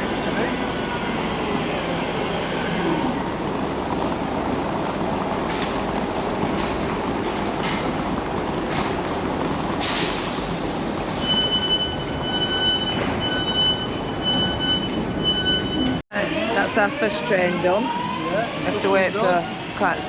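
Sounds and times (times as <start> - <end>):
train rumbling: 0.0 - 20.0
electronic beep: 11.2 - 16.0.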